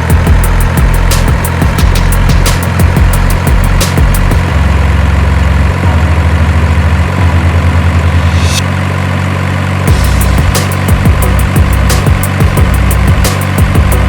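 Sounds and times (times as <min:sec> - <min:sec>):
music beats: 0:00.0 - 0:06.0, 0:09.9 - 0:14.0
diesel truck engine idling: 0:00.0 - 0:14.0.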